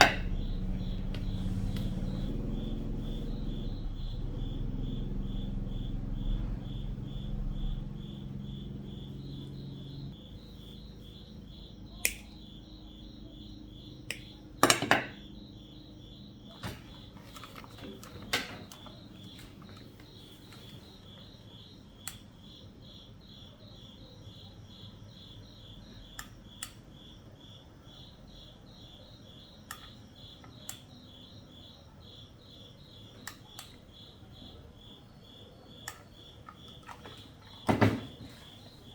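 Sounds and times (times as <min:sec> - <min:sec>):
low hum: 0:00.0 - 0:13.9
high-pitched pulsing chirp: 0:00.0 - 0:14.6.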